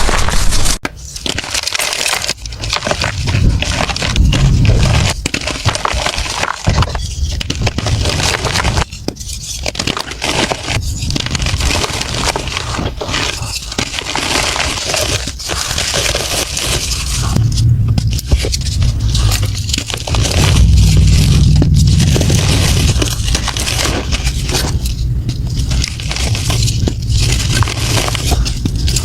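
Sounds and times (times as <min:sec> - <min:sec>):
chalk being crushed: 0:00.0 - 0:29.0.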